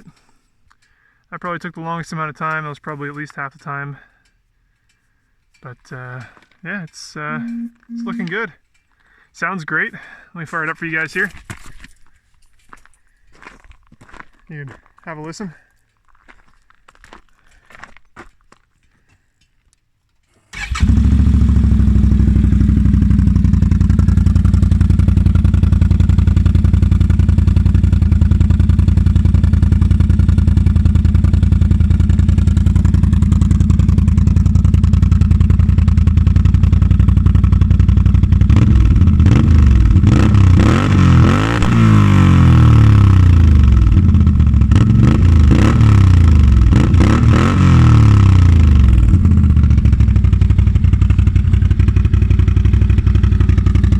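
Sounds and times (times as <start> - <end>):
motorcycle engine idling and revving: 20.6 - 53.9.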